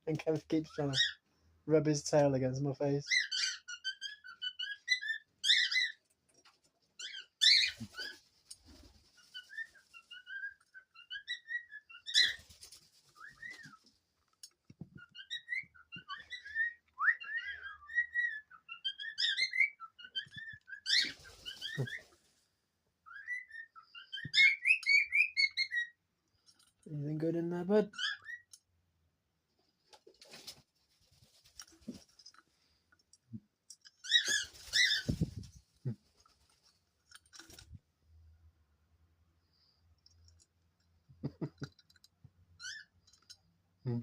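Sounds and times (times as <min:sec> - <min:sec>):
cockatiels whistling and chattering: 0:03.1 - 0:06.0, 0:07.0 - 0:13.8, 0:14.9 - 0:22.2, 0:23.0 - 0:26.0, 0:28.0 - 0:28.6, 0:34.0 - 0:35.5.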